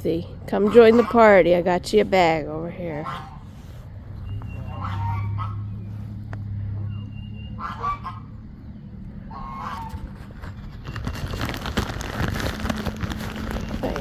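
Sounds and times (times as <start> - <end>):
geese honking: 0.0 - 10.6
low steady hum: 0.0 - 14.0
rustling: 2.9 - 6.8, 9.8 - 14.0.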